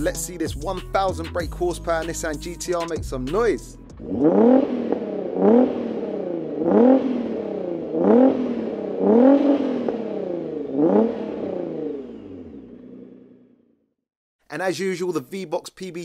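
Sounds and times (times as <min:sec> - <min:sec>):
car engine revving: 0:03.9 - 0:13.8.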